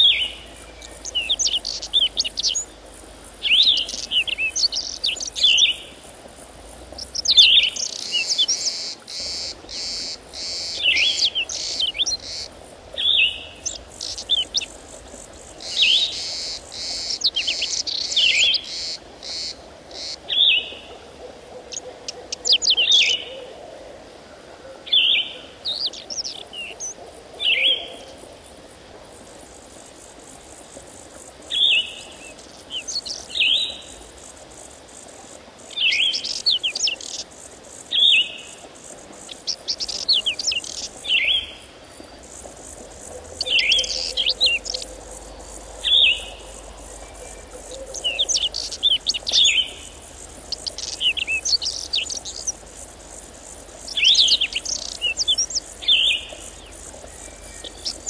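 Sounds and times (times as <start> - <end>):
bird chirping calls: 0.0 - 2.8, 3.4 - 6.0, 6.9 - 21.0, 39.3 - 52.7, 53.9 - 58.0.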